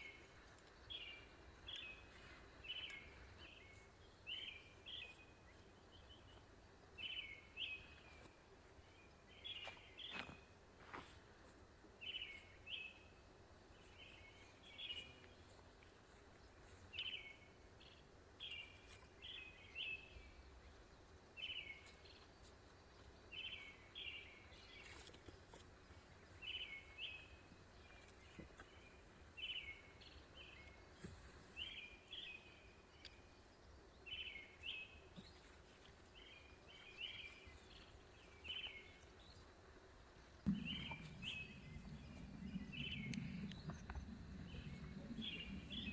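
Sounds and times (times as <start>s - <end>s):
bird chirping: 0.0s - 10.5s, 12.0s - 31.0s, 31.6s - 39.6s, 40.2s - 45.9s
outdoor background noise: 0.0s - 45.9s
loud low noise: 40.5s - 45.9s.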